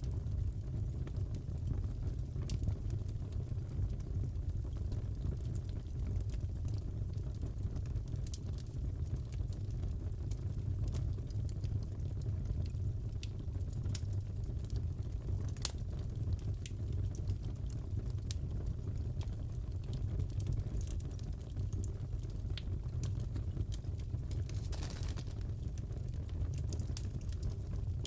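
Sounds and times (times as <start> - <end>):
fire pops and crackles: 0.0 - 28.0
fireplace burning rumble: 0.0 - 28.0.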